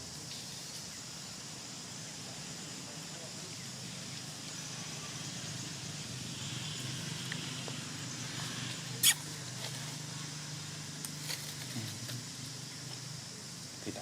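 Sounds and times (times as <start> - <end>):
faint high hiss: 8.9 - 9.4.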